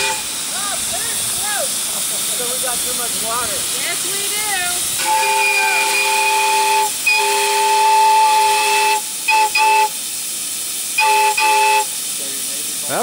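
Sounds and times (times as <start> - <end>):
steam locomotive chime whistle: 0.0 - 0.4, 5.0 - 10.1, 10.9 - 12.0
steam hissing: 0.0 - 13.0.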